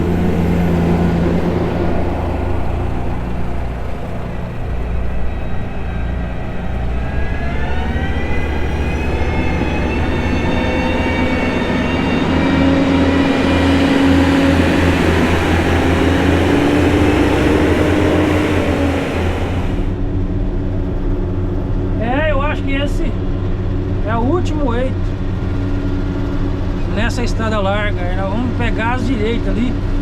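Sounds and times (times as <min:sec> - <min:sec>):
diesel engine under load: 0:00.0 - 0:20.2.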